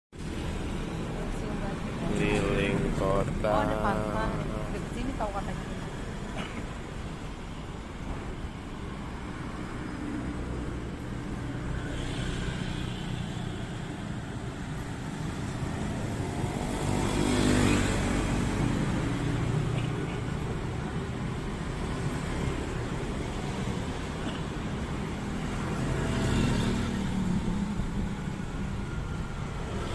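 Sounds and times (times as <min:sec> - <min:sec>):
traffic engines rumbling: 0:00.2 - 0:29.9
motor vehicle passing by: 0:15.1 - 0:20.0, 0:25.2 - 0:28.0.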